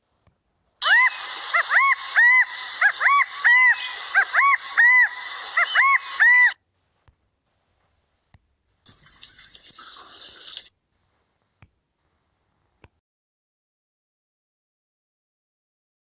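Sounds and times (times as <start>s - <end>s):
steady hiss: 8.9s - 10.7s.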